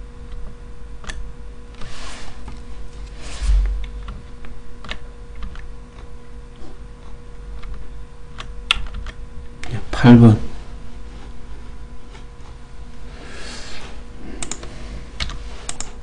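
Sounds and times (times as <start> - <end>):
faint electrical hum: 0.0 - 16.0
breathy rushes of noise: 3.0 - 4.1.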